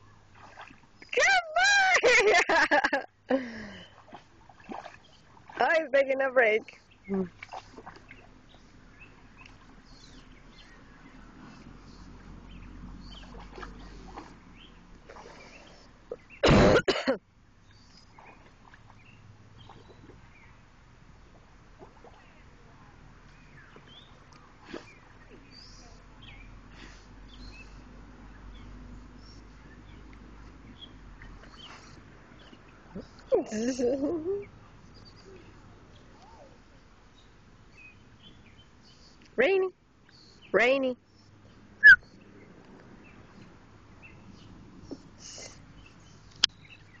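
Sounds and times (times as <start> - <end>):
low background hum: 0.0 - 47.0
small birds chirping: 3.5 - 5.8, 6.4 - 16.4, 17.6 - 21.3, 22.0 - 47.0
high bird chirps: 41.8 - 42.1.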